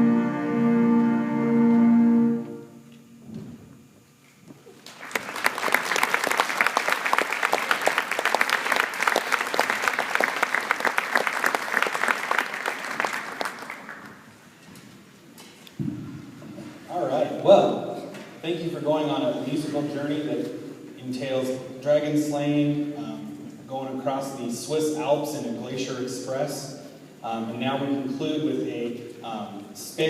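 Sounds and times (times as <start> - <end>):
audience applause: 4.8 - 14.3.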